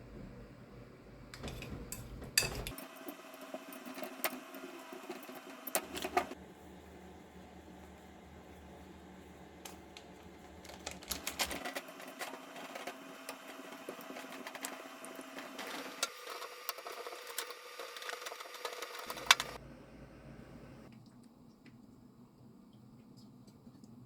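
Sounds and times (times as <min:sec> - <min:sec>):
utensils and cookware clicking: 0:01.4 - 0:04.4, 0:10.6 - 0:19.6.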